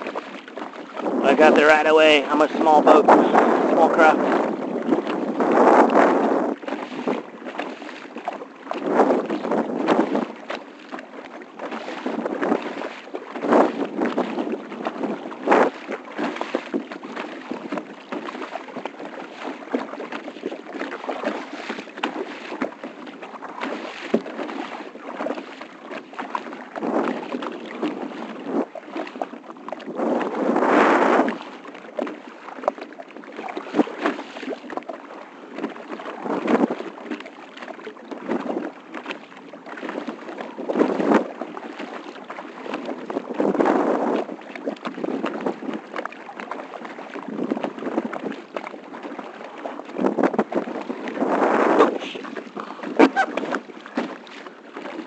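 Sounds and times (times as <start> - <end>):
wind buffeting microphone: 0.0 - 10.5, 11.6 - 18.5, 26.8 - 32.8, 42.8 - 46.0, 50.0 - 54.9
water splashing around kayak: 0.0 - 55.0.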